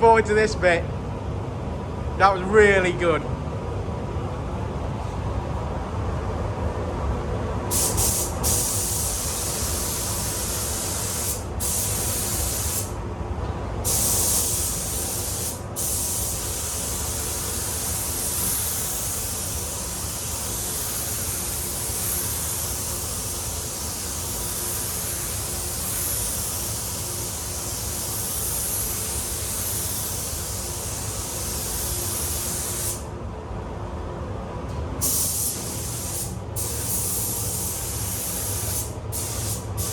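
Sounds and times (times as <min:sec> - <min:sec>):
paint spray gun hissing: 0:07.7 - 0:12.9, 0:13.9 - 0:33.0, 0:35.0 - 0:39.9.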